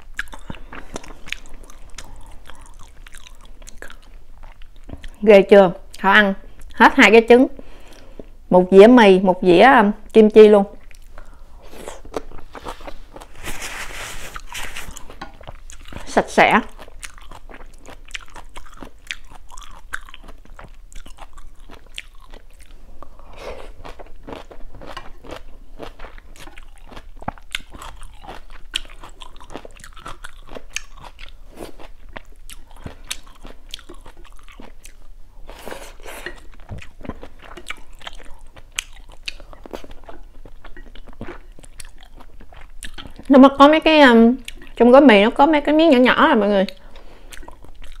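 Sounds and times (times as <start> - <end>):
person chewing food: 0.0 - 5.2, 10.0 - 43.3, 44.4 - 44.8, 46.7 - 48.0.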